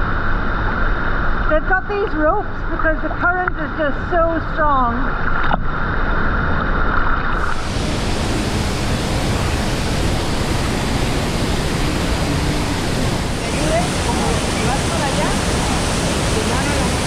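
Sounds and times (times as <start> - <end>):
waterfall and river rushing: 7.4 - 17.0.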